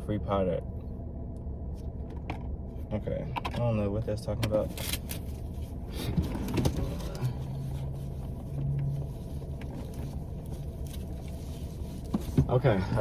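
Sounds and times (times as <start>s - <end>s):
low rumble inside car cabin: 0.0s - 13.0s
soft knocks and rustles: 8.4s - 12.6s.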